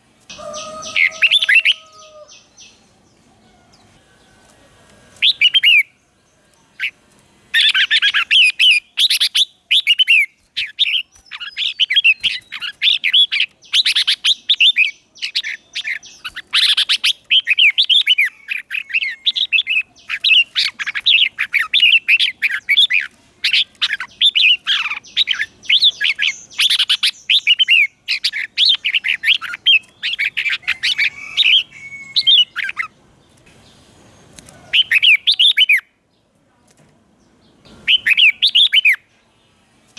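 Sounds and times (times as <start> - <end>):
bird warbling: 0.3 - 2.8, 7.6 - 33.0, 34.5 - 35.8, 37.7 - 39.0.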